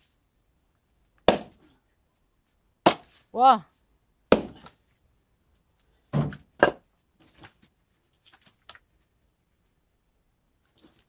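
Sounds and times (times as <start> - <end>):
axe striking wood: 1.2 - 1.6, 2.8 - 3.2, 4.3 - 4.8, 6.1 - 6.8.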